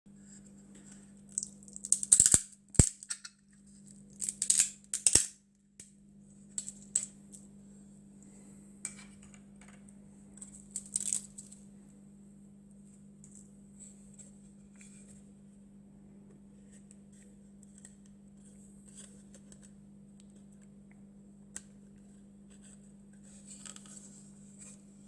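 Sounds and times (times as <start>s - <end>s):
steady low hum: 0.1s - 25.0s
plastic crackling and snapping: 1.3s - 3.3s, 4.1s - 5.4s.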